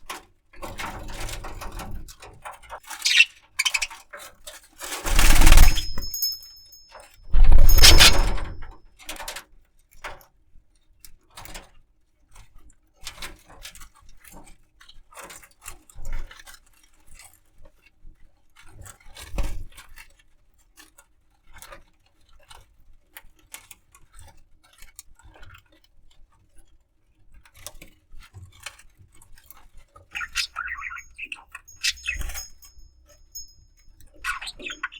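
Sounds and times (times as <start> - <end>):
bird clicking and scratching: 4.8 - 6.6, 7.4 - 8.6, 30.2 - 32.7, 34.2 - 34.9
jangling rattles: 4.8 - 8.7, 30.2 - 33.6, 34.2 - 34.9.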